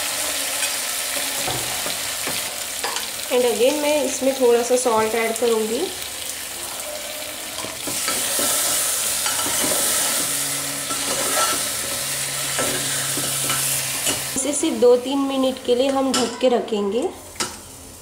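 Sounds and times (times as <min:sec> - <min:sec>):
vegetables sizzling in hot oil: 0:00.0 - 0:18.0
steel ladle scraping a pot: 0:07.9 - 0:14.3.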